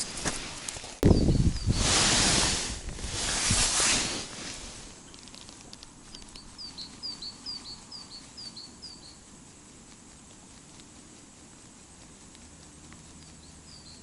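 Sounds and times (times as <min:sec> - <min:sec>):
small bird chirping: 0:01.0 - 0:02.0, 0:05.0 - 0:14.0.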